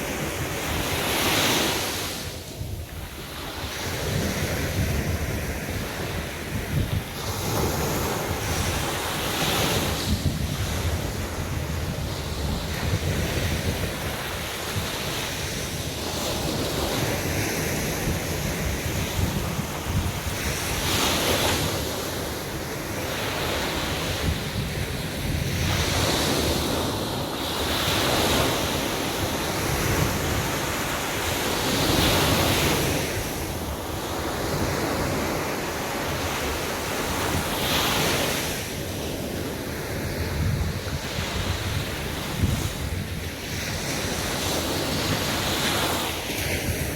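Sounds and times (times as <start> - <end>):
sea waves breaking on beach: 0.0 - 46.9
wind buffeting microphone: 0.0 - 46.9.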